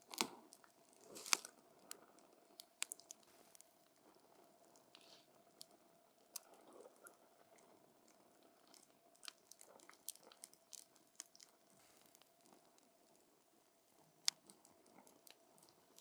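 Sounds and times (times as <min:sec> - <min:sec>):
campfire pops and snaps: 0:00.0 - 0:02.0, 0:02.6 - 0:03.2.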